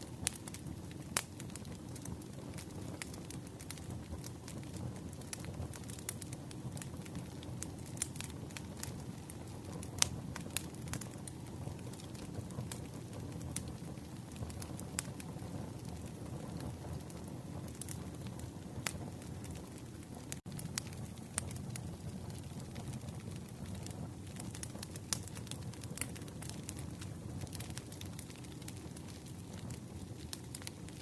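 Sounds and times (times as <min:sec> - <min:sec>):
campfire crackling: 0:00.0 - 0:31.0.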